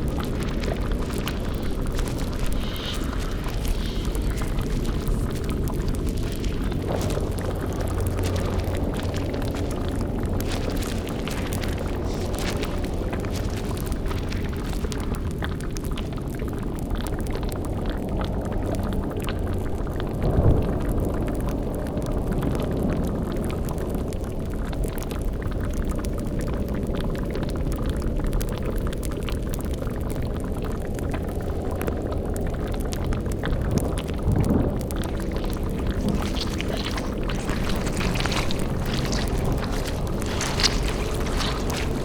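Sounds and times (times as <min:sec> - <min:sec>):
low rumble: 0:00.0 - 0:16.3, 0:16.9 - 0:23.2, 0:33.6 - 0:42.0
cauldron bubbling: 0:00.0 - 0:23.4, 0:29.6 - 0:42.0.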